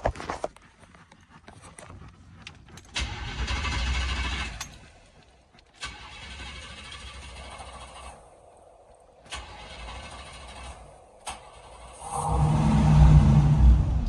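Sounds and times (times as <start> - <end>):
engine starter cranking: 2.9 - 4.8, 5.7 - 8.2, 9.2 - 13.0.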